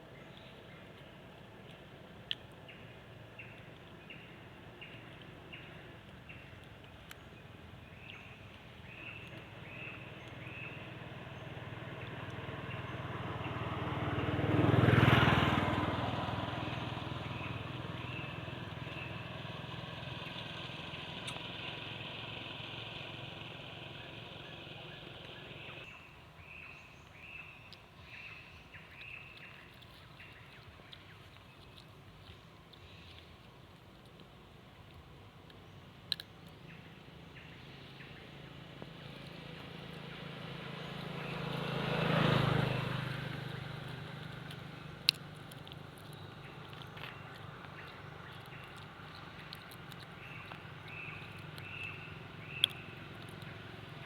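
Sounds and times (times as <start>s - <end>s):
motor vehicle passing by: 8.8s - 33.4s, 36.6s - 54.0s.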